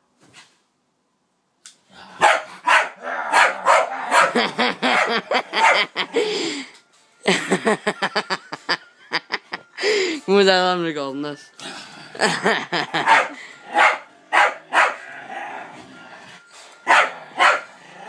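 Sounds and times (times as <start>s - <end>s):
dog barking rapidly: 2.2s - 6.0s, 13.0s - 15.0s, 16.9s - 17.7s.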